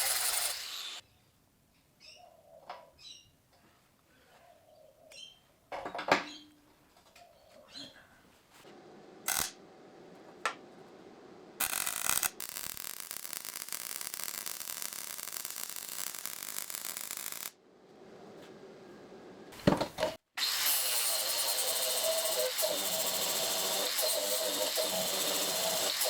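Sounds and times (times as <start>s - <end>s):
welder crackling: 0.0s - 1.0s, 9.2s - 9.6s, 11.6s - 17.6s, 20.4s - 26.0s.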